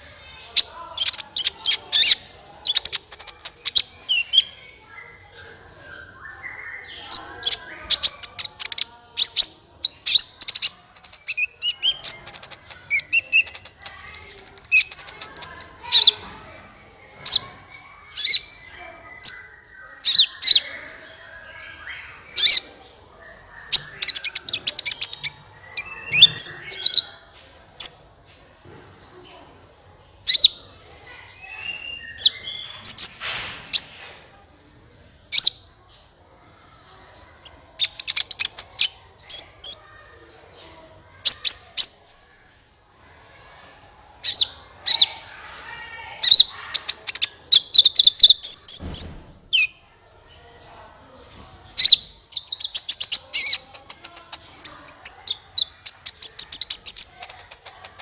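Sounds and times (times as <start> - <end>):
sunbird song high chirps: 0.6 - 16.2, 30.3 - 33.2.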